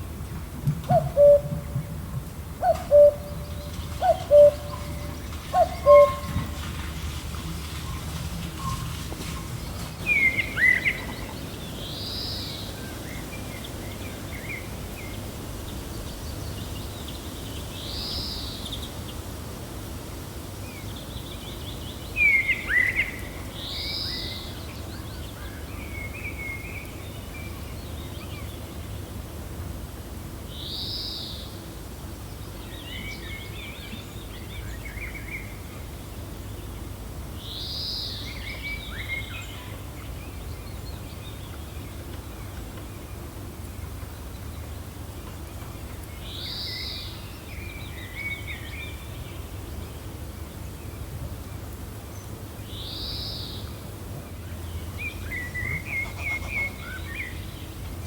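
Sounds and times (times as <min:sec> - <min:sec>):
low wind rumble: 0:00.0 - 0:30.5
birds calling: 0:00.8 - 0:12.4, 0:54.6 - 0:58.0.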